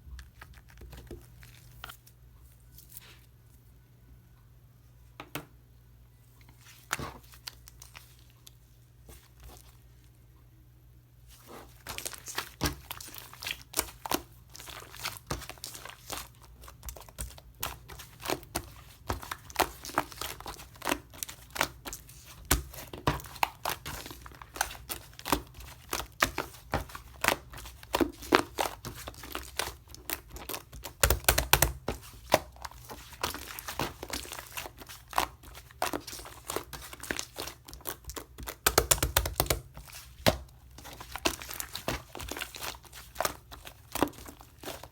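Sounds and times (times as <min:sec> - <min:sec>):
slime squished by hand: 0:11.4 - 0:44.9.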